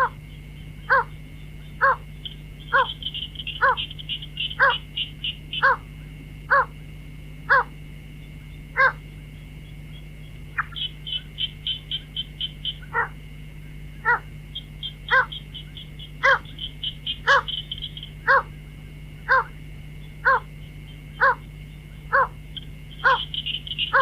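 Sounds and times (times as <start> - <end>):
high ticking chatter: 0.0 - 6.8, 7.5 - 24.0
steady high whine: 0.0 - 24.0
bird calling short notes: 1.8 - 5.9, 14.0 - 18.5, 22.2 - 24.0.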